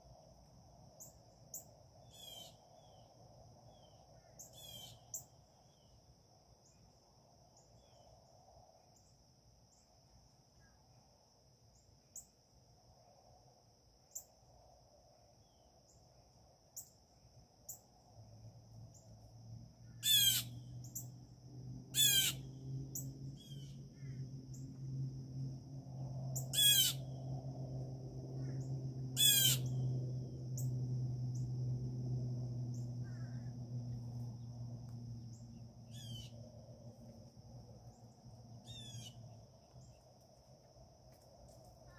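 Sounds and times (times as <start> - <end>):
low hum: 18.3 - 41.8
harsh bird calls sweeping down: 20.0 - 20.6, 22.0 - 22.4, 26.4 - 27.1, 29.2 - 29.8
wild birds calling: 20.0 - 21.1, 21.9 - 24.2, 26.4 - 27.2, 28.4 - 29.9, 32.8 - 33.6, 35.9 - 36.4.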